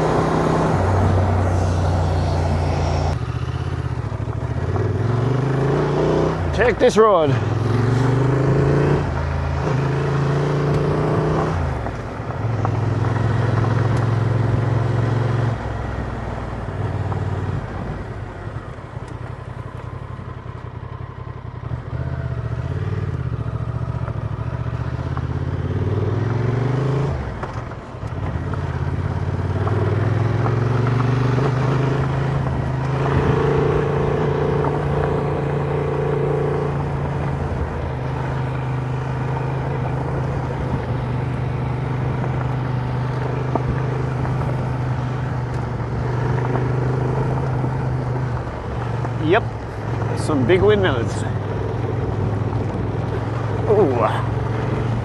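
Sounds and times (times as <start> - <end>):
motorcycle engine revving: 0.0 - 17.8, 19.8 - 55.0.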